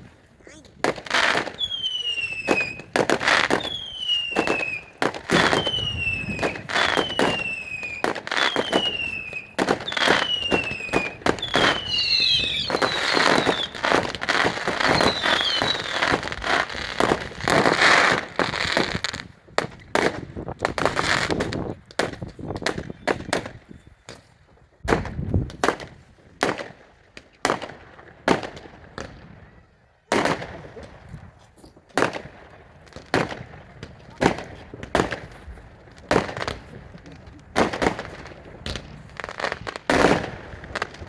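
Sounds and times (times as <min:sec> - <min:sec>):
fireworks banging: 0:00.0 - 0:23.6, 0:30.1 - 0:41.0.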